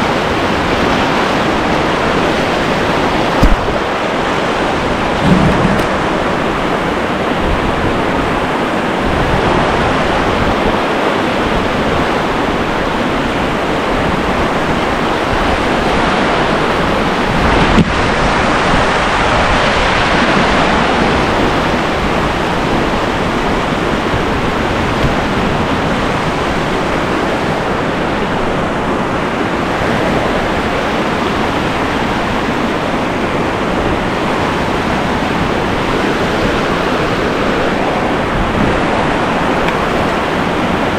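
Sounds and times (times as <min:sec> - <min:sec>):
whitewater rushing: 0:00.0 - 0:40.9
brief knock: 0:03.4 - 0:03.7, 0:05.2 - 0:06.1.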